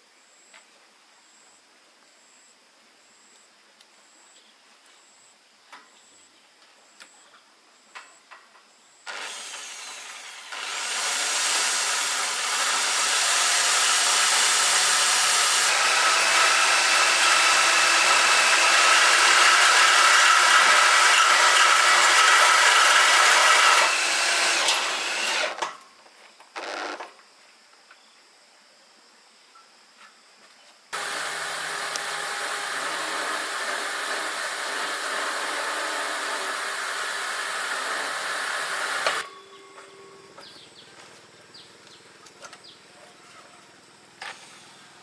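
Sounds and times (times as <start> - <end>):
power tool whining: 9.1 - 25.8, 31.0 - 42.8.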